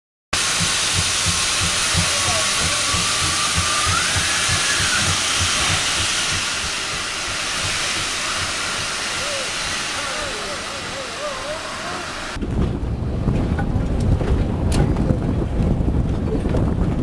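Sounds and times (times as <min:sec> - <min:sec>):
low rhythmic pulse: 0:00.4 - 0:11.6
steam locomotive hissing: 0:00.4 - 0:12.4.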